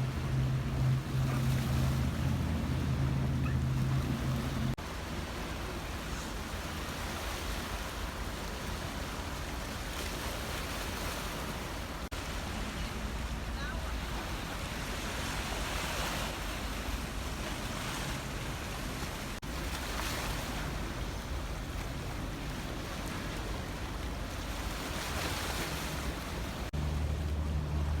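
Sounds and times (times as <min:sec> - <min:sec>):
boat engine droning: 0:00.0 - 0:28.0
water noise: 0:00.0 - 0:28.0
wind: 0:00.0 - 0:28.0.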